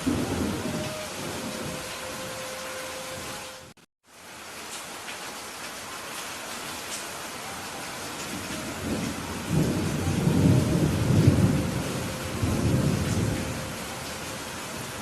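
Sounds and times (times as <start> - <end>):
thunder rumbling: 0.0 - 3.7, 8.2 - 15.0
steady rain: 0.0 - 15.0.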